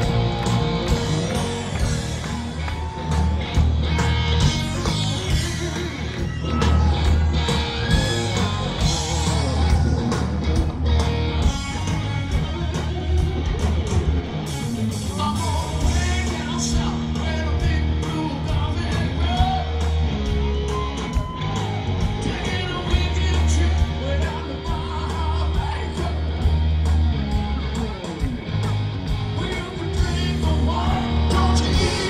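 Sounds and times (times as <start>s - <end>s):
live rock band playing: 0.0s - 32.0s
man singing lead vocals: 4.7s - 7.0s, 7.8s - 10.2s, 15.0s - 19.9s, 22.1s - 26.6s, 29.2s - 32.0s.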